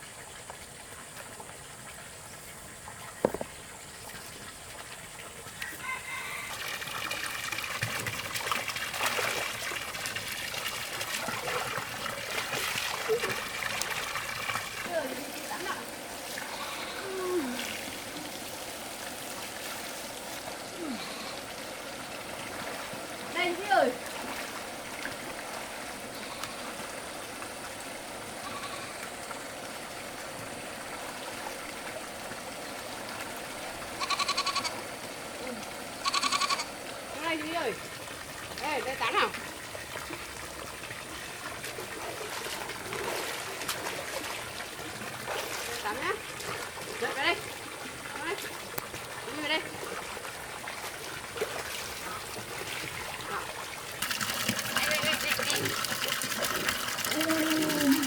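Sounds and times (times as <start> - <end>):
water running and trickling: 0.0 - 58.0
small drips and splashes: 0.1 - 34.0, 34.7 - 58.0
faint goat bleat: 16.5 - 17.6, 20.8 - 21.4, 26.1 - 26.7, 28.4 - 29.0, 34.0 - 34.8, 35.4 - 36.7.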